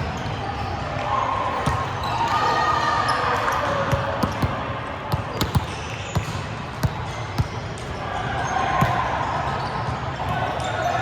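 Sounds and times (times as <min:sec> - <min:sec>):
sports hall background noise: 0:00.0 - 0:11.0
volleyballs thudding on court: 0:01.5 - 0:08.0, 0:08.7 - 0:09.2.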